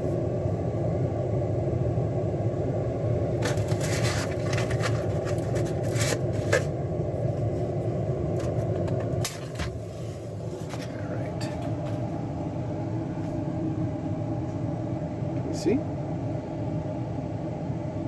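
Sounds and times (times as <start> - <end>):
clicks and scrapes: 3.4 - 6.7.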